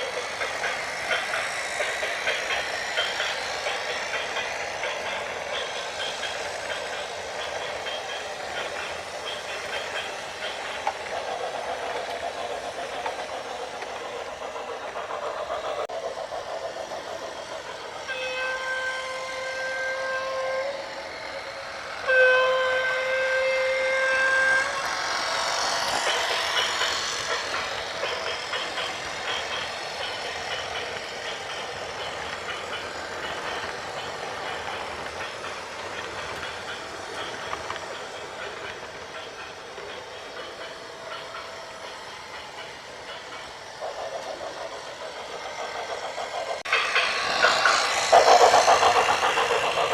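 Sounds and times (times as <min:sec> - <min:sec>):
horn blasts: 0:18.1 - 0:20.8, 0:22.0 - 0:24.7.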